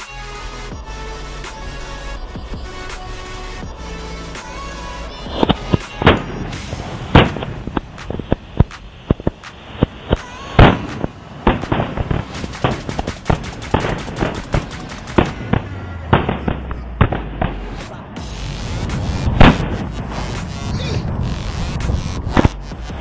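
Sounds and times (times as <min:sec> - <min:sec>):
firework cracks: 0:01.2 - 0:23.0
firework pops and bangs: 0:05.4 - 0:18.0, 0:18.9 - 0:20.5.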